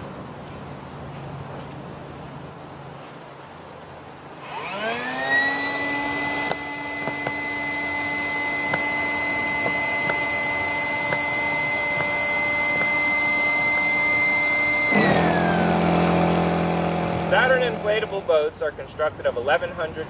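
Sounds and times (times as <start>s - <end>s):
electric air pump whining: 4.4s - 18.6s.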